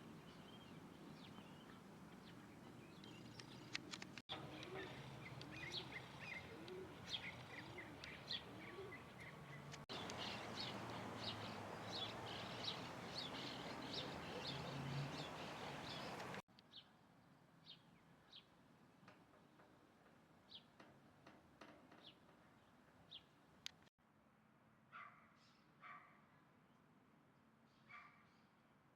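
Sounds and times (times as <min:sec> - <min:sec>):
small birds chirping: 0:00.3 - 0:16.8
background hiss: 0:09.6 - 0:16.4.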